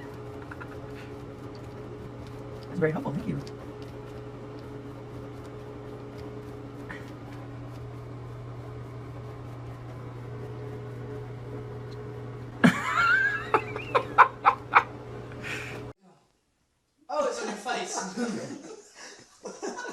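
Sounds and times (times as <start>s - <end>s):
burst of laughter: 12.6s - 14.9s.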